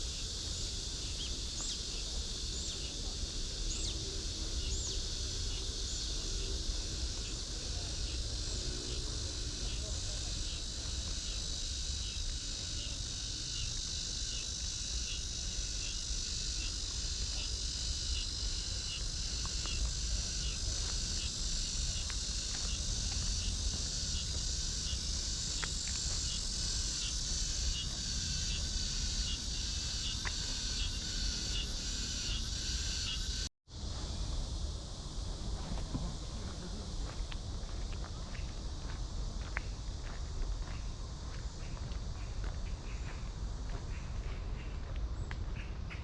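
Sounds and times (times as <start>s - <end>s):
cicadas buzzing: 0.0s - 46.0s
pulsing insect call: 0.0s - 46.0s.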